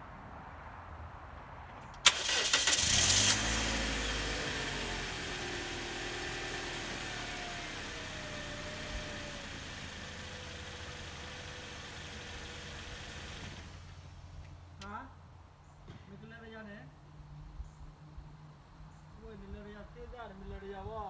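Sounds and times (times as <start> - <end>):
car engine idling: 2.0 - 14.8
starter motor cranking: 2.1 - 3.4.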